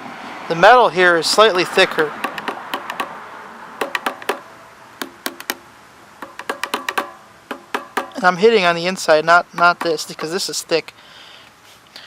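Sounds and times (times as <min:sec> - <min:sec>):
light taps on metal oil filters: 0:02.2 - 0:03.1, 0:03.8 - 0:04.4, 0:06.2 - 0:08.2, 0:09.5 - 0:10.5.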